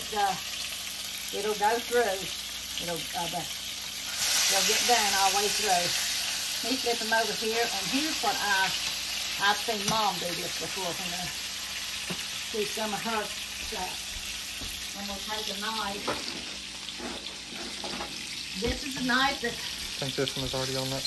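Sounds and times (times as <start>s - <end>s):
meat sizzling in oil: 0.0s - 21.0s.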